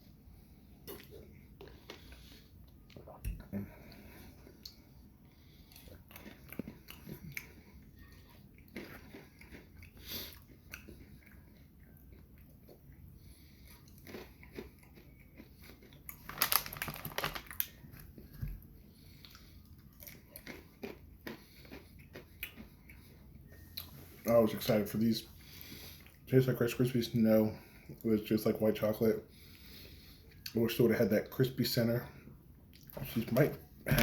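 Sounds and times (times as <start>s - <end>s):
person crunching candy: 5.7s - 11.1s, 13.8s - 18.1s, 19.3s - 22.8s.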